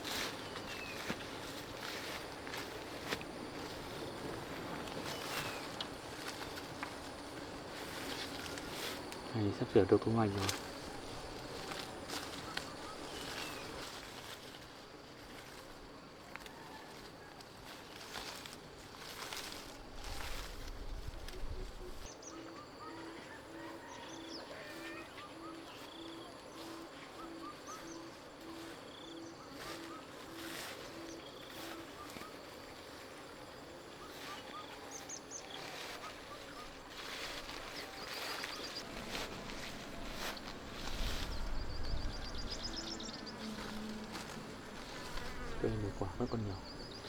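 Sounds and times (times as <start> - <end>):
bird low hooting call: 10.2 - 13.9, 19.8 - 32.8, 33.6 - 47.0.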